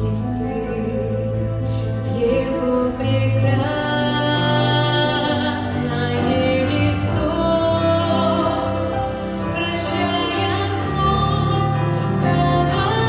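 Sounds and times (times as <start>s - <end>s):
musical accompaniment: 0.0s - 13.0s
woman singing slow song: 0.0s - 13.0s.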